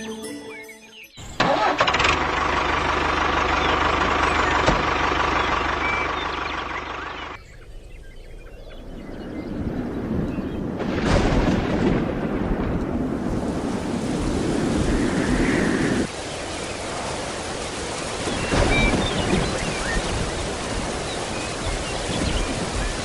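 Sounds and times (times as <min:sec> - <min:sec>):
heavy rain: 0:01.5 - 0:07.4, 0:09.9 - 0:23.0
thunder rumbling: 0:07.6 - 0:23.0.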